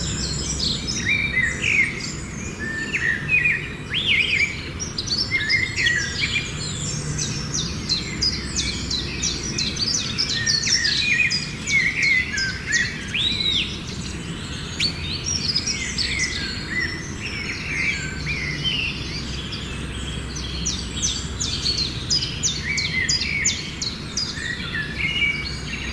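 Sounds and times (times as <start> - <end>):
songbirds singing and chirping: 0.0 - 25.9.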